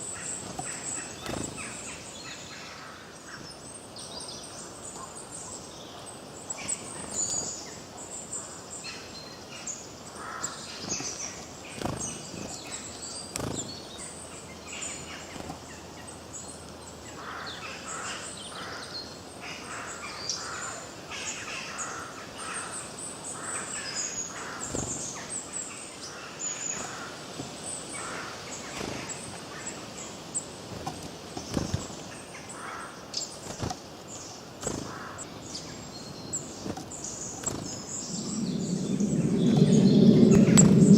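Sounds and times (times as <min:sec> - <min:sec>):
background hiss: 0:00.0 - 0:40.9
birds singing and chirping: 0:27.6 - 0:40.9.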